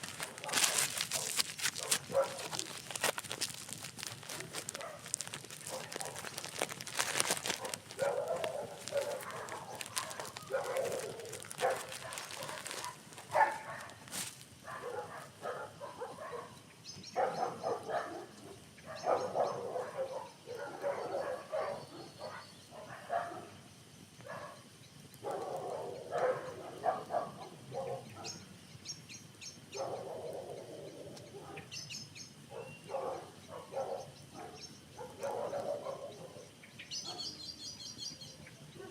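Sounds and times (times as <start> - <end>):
campfire crackling and popping: 0.0 - 14.8, 24.7 - 25.7
small birds chirping: 0.0 - 38.9.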